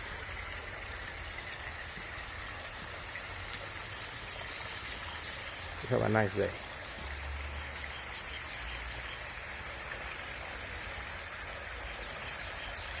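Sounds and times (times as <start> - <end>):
water splashing down a waterfall: 0.0 - 13.0.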